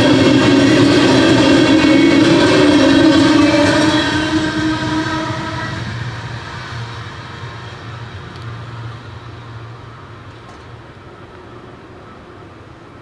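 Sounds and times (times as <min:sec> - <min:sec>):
low hum: 0:00.0 - 0:09.5
train rumble: 0:00.0 - 0:13.0.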